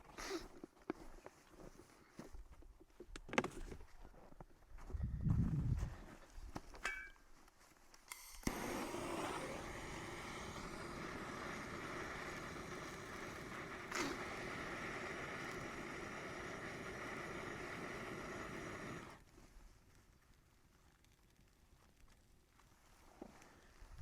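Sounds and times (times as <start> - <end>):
small clicks: 7.9 - 9.0
bonfire flames rushing: 8.5 - 19.6.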